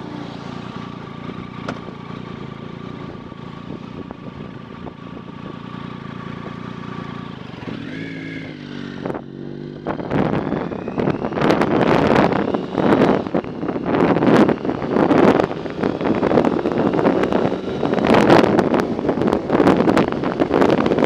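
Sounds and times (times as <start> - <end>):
motorcycle engine running: 0.0 - 21.0
wind buffeting microphone: 7.4 - 21.0.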